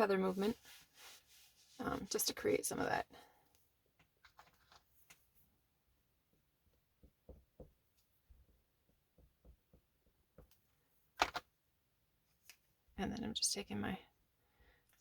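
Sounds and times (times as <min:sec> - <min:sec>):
oil pastel tapping on paper: 0:06.9 - 0:07.8, 0:08.4 - 0:10.6.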